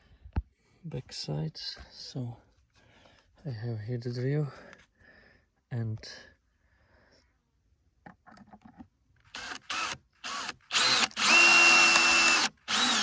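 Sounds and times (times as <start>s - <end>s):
electric drill running: 9.4s - 13.0s.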